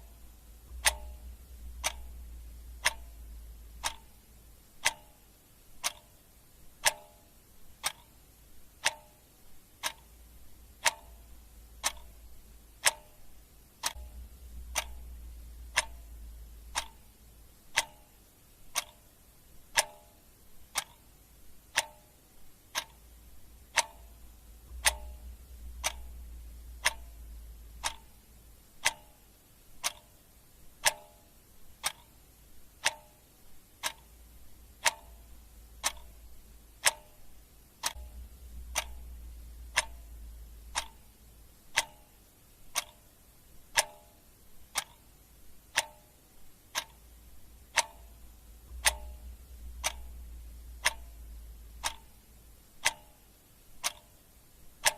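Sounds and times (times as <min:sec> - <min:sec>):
clock ticking: 0:00.0 - 0:54.9
faint low hum: 0:00.0 - 0:54.9.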